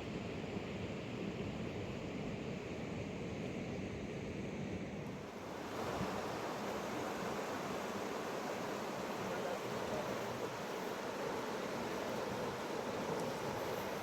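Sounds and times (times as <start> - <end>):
river water rushing: 5.2 - 14.0.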